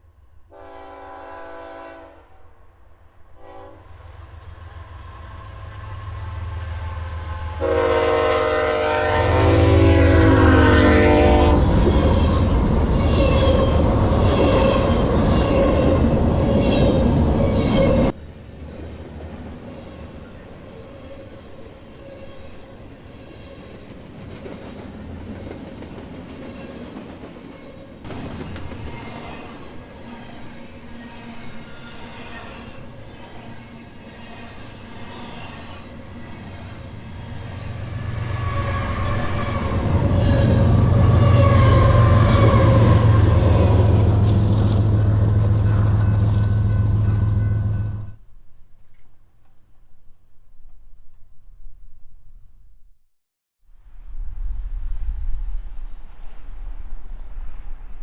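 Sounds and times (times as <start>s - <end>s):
train horn: 0.5s - 4.4s, 6.2s - 18.2s, 37.0s - 48.2s
train wheels clattering on rail joints: 23.3s - 30.8s
locomotive engines rumbling: 32.8s - 48.2s.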